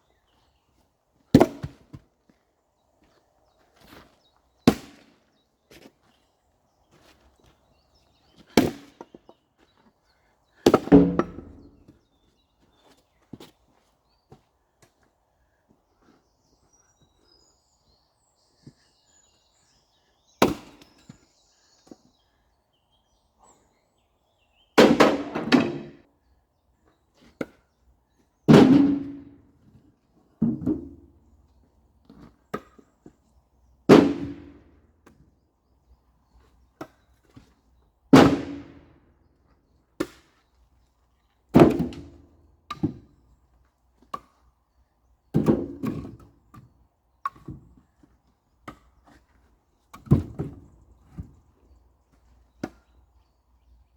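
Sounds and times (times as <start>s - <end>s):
logs thunking: 10.7s - 12.0s, 24.8s - 26.0s, 28.5s - 29.4s, 33.9s - 34.7s, 38.2s - 38.8s, 41.6s - 43.0s.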